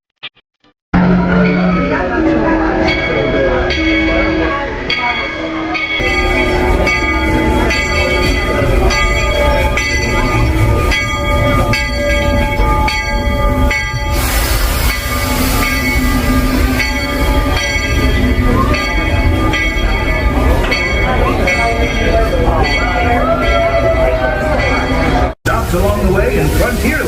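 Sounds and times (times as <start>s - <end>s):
locomotive bell ringing: 1.0s - 27.0s
steam hissing: 13.5s - 18.0s, 25.5s - 27.0s.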